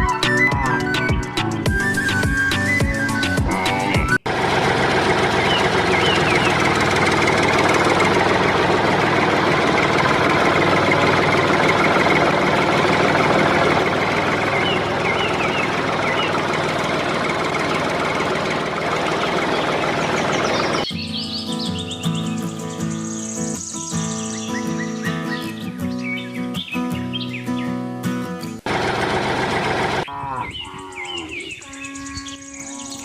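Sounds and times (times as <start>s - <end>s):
engine running: 0.0s - 25.4s, 28.5s - 33.0s
faint high chirps: 20.8s - 26.0s.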